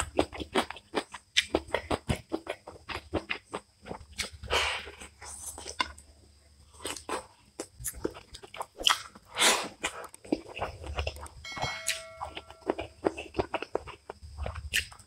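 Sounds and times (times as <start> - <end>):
person chewing food: 0.0 - 6.0, 6.6 - 15.0
wet mouth clicks and smacks: 14.1 - 15.0.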